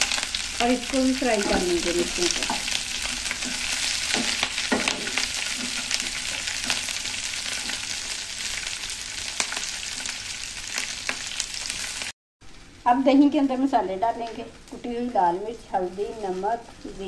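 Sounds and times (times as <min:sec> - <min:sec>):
chillies sizzling in hot oil: 0:00.0 - 0:17.0.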